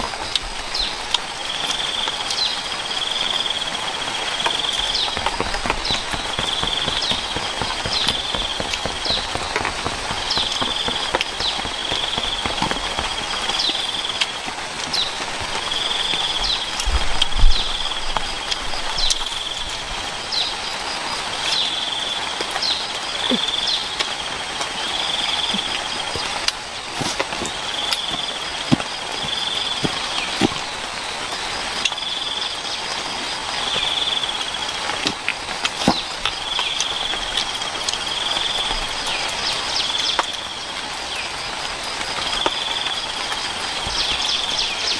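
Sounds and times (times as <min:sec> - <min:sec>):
steady hiss: 0:00.0 - 0:44.9
knocks and taps: 0:05.1 - 0:13.8.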